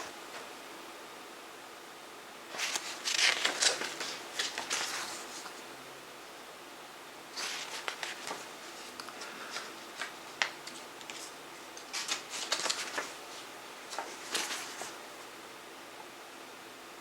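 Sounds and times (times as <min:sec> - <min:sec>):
paper rustling: 0:02.5 - 0:05.6, 0:07.3 - 0:15.0.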